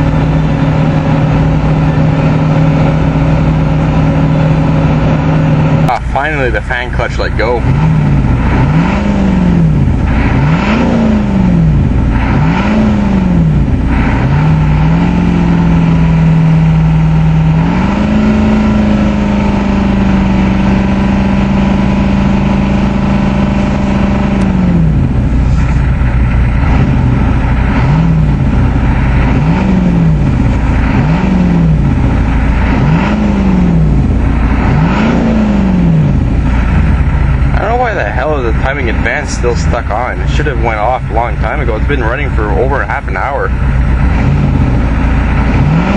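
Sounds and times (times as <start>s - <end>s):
clattery diesel engine revving: 0.0s - 45.9s.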